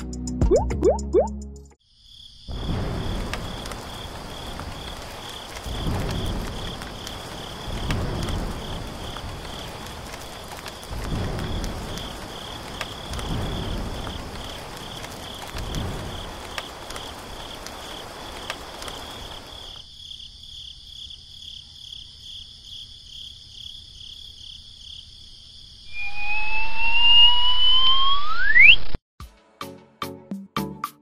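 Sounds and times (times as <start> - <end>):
insects trilling: 1.9 - 27.9
rising whistle-like glide: 25.9 - 29.0.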